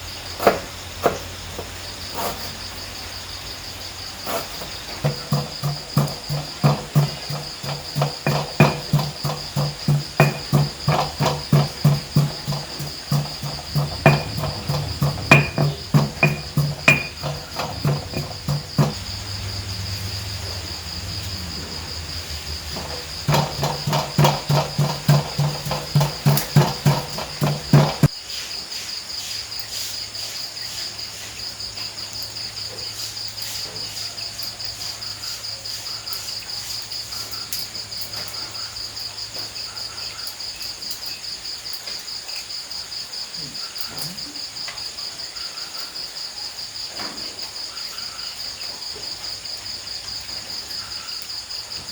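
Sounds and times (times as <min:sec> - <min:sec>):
insects chirping: 0:00.0 - 0:51.9
loud knocks: 0:04.3 - 0:28.2.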